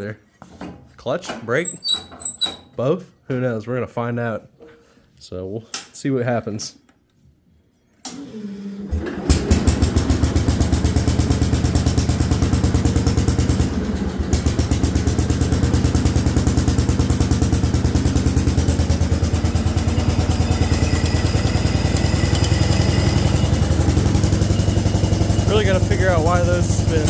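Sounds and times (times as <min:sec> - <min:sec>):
garden tractor engine running: 0:09.0 - 0:27.0.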